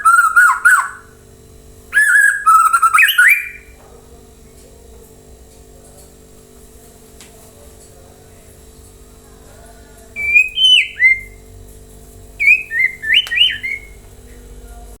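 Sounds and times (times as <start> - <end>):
bird whistling song: 0.0 - 1.2, 1.9 - 3.8, 10.2 - 11.4, 12.4 - 14.0
electrical hum: 0.0 - 15.0.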